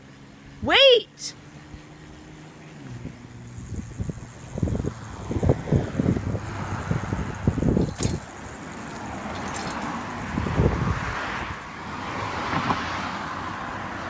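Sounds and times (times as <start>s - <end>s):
road and tyre noise: 0.0s - 14.0s
wind rumbling on microphone: 2.7s - 13.2s
light click and rattle: 7.7s - 8.3s.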